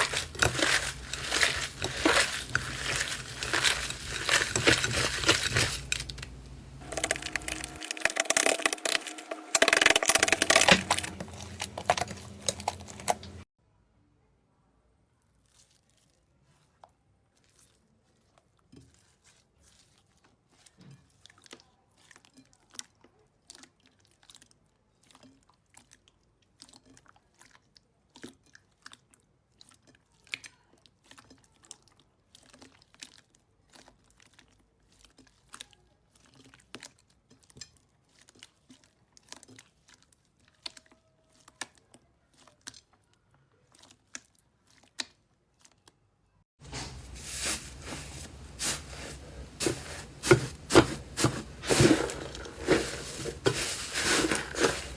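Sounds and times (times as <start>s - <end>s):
slime crunchy crackling: 0.0s - 13.4s, 46.7s - 54.9s.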